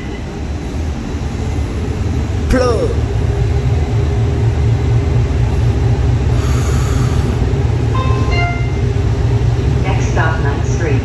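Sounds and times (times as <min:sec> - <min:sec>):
train rumbling: 0:00.0 - 0:11.0
electronic chime: 0:08.0 - 0:09.0.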